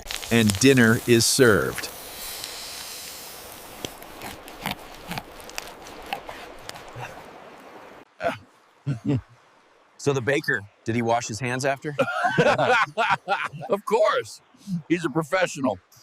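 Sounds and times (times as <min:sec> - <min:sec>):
steady hiss with clicks: 0:00.0 - 0:05.9.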